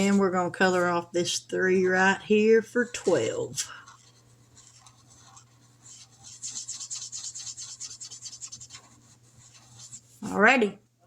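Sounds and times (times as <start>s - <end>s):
marker scratching on paper: 1.7s - 10.4s.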